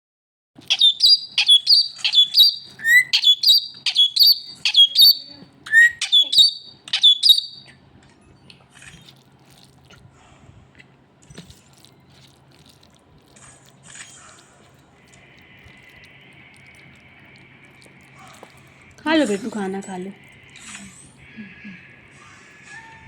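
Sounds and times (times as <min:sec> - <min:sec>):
parrot calling: 0:00.7 - 0:07.7.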